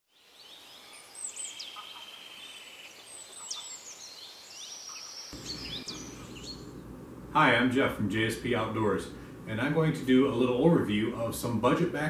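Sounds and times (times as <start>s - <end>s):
songbirds singing and chirping: 0.1s - 7.0s
bird trill: 0.8s - 6.7s.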